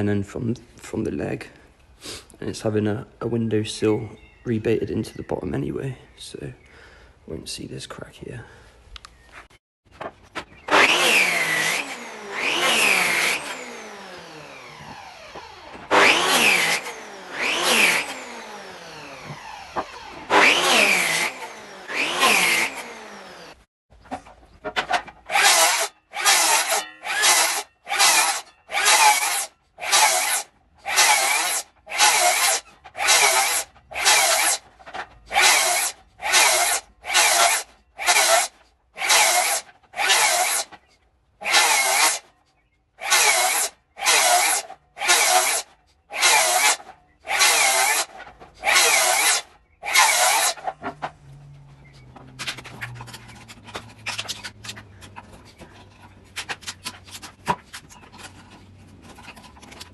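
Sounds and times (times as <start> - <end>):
hand saw cutting wood: 10.6 - 23.6, 25.2 - 34.7, 35.3 - 40.8, 41.4 - 42.2, 43.0 - 51.0.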